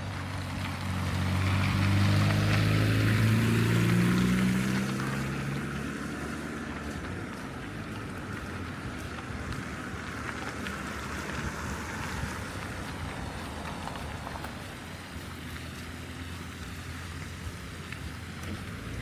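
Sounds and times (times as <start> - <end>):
car tyres hissing on snow: 0.0 - 19.0
low hum of traffic: 0.0 - 19.0.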